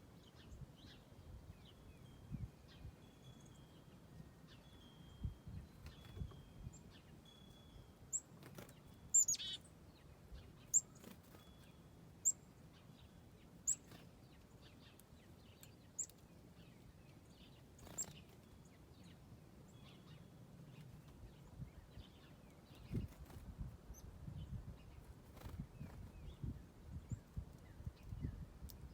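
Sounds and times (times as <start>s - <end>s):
songbird chip notes: 0.2s - 23.1s
buzzy bird trill: 4.6s - 9.6s.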